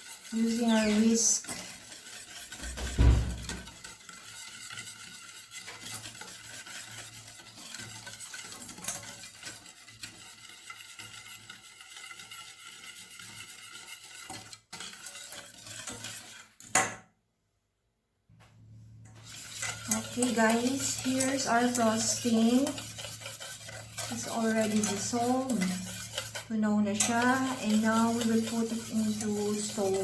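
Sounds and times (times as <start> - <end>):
whisk stirring in a bowl: 0.0 - 16.7, 19.0 - 30.0
loud knock: 2.8 - 3.6.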